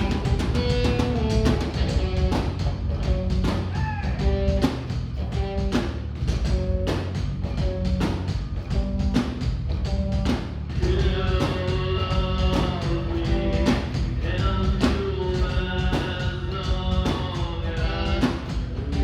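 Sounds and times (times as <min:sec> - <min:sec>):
drum kit beating: 0:00.0 - 0:19.0
metal band playing: 0:00.0 - 0:19.0.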